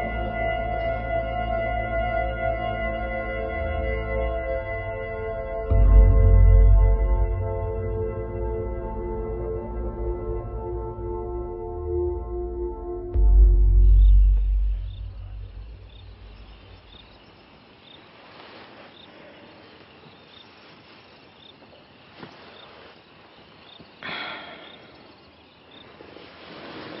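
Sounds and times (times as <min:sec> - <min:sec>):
deep low boom: 0:05.4 - 0:10.5, 0:11.4 - 0:17.1
insect chirping: 0:13.2 - 0:27.0
short rustling: 0:18.0 - 0:23.5, 0:25.8 - 0:27.0.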